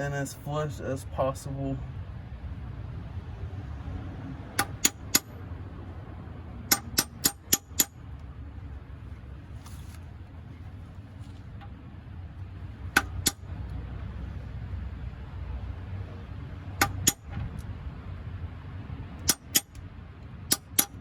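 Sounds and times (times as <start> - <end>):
hammer striking metal: 4.6 - 5.4, 6.7 - 8.0, 12.9 - 13.5, 16.8 - 17.2, 19.2 - 19.8, 20.5 - 21.0.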